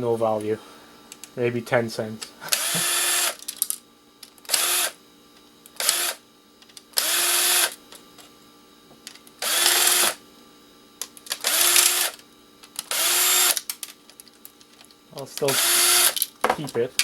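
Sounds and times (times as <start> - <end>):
electric drill-driver bursts: 2.5 - 3.5, 4.5 - 5.0, 5.7 - 6.2, 7.0 - 7.8, 9.4 - 10.2, 11.3 - 12.2, 12.8 - 13.7, 15.5 - 16.2.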